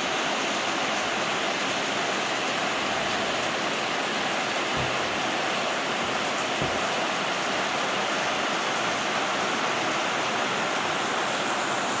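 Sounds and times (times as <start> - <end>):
heavy rain on foliage: 0.0 - 12.0
faint low thud: 4.7 - 5.2, 6.6 - 6.9.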